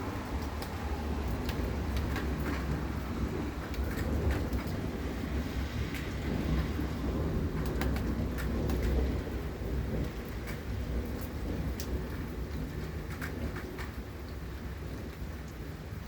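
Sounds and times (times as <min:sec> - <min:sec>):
thunder rumbling: 0:00.0 - 0:16.0
raindrop ticks: 0:00.2 - 0:16.0.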